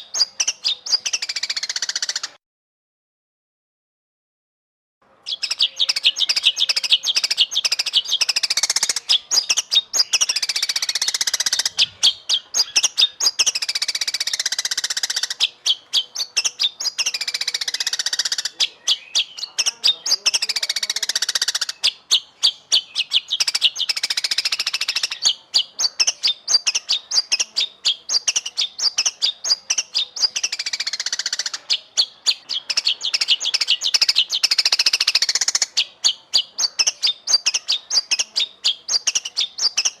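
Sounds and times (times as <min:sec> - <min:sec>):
songbird singing: 0:00.0 - 0:02.4, 0:05.0 - 0:40.0.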